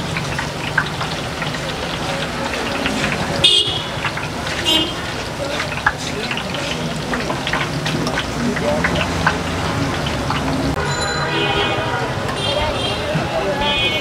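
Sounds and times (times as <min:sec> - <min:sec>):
deep-frying oil sizzle: 0:00.0 - 0:14.0
vehicle horn toots: 0:03.4 - 0:04.0, 0:04.6 - 0:05.0, 0:10.8 - 0:14.0.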